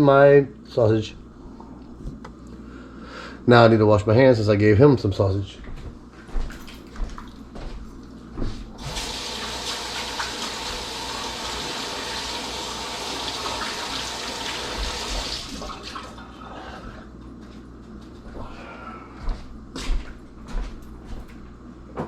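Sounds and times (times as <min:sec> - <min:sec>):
tap water running: 0:08.8 - 0:16.3.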